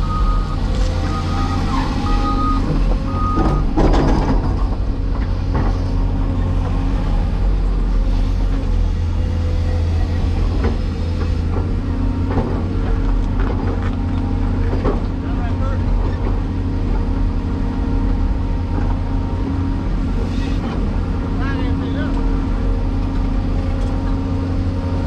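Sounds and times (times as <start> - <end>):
back-up alarm beeping: 0.0 - 3.8
diesel engine running: 0.0 - 25.0.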